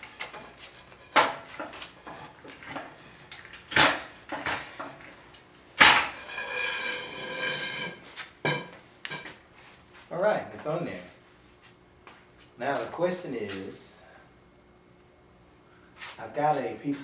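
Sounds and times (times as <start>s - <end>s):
metal knocks and clanks: 0.0s - 5.2s, 5.8s - 8.7s.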